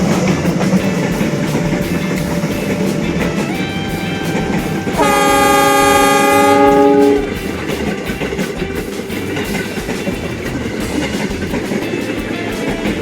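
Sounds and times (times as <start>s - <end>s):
train rumble and rail clatter: 0.0s - 13.0s
locomotive horn blast: 4.3s - 7.4s.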